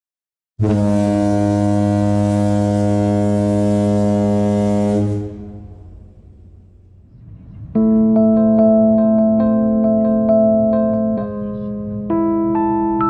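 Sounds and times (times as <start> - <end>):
ship horn low blast: 0.6 - 7.1.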